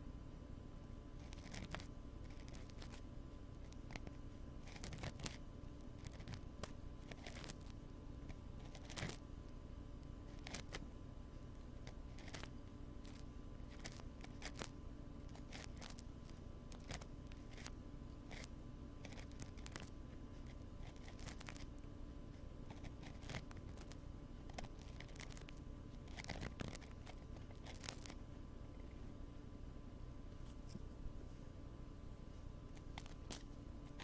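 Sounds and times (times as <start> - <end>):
steady low hum: 0.0 - 34.0
tool scratching on microphone: 1.2 - 3.0.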